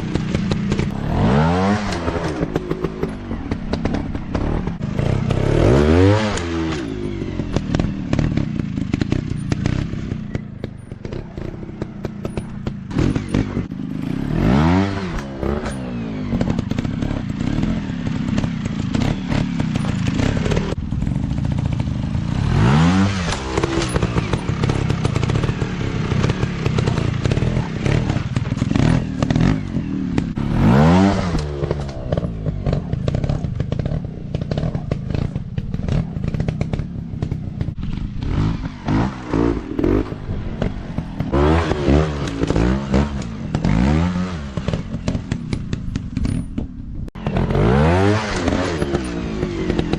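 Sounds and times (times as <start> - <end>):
dirt bike engines revving: 0.0 - 49.9
rattling clatter: 15.1 - 22.1, 44.6 - 47.6.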